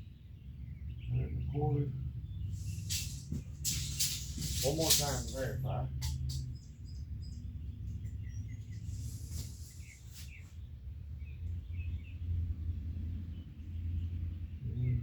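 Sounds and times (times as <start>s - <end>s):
birds chirping: 0.0s - 15.0s
low background rumble: 0.0s - 15.0s.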